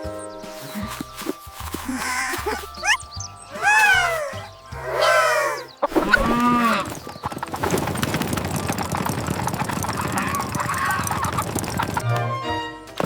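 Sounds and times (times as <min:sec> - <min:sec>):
farm animal calls: 0:00.5 - 0:07.8, 0:09.6 - 0:12.0
busy clattering: 0:06.8 - 0:12.0.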